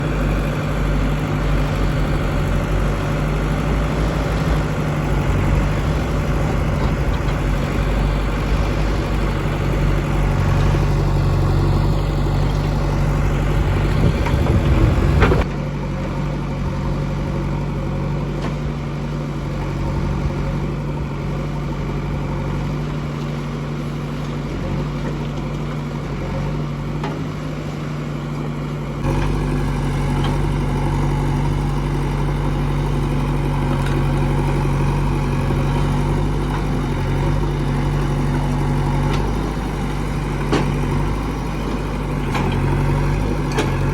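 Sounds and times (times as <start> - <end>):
diesel engine running: 0.0 - 43.9
loud rattle: 1.6 - 15.5.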